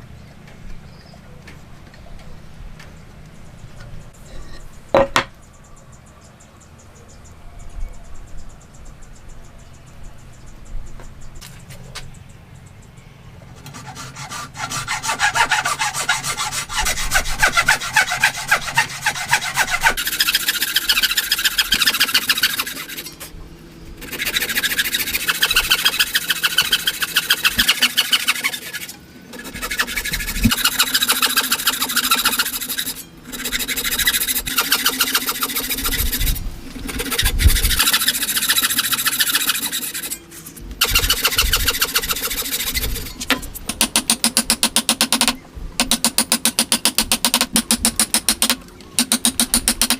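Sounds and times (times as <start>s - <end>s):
hand tool sawing wood: 13.6s - 23.4s, 24.0s - 40.2s, 40.8s - 44.7s.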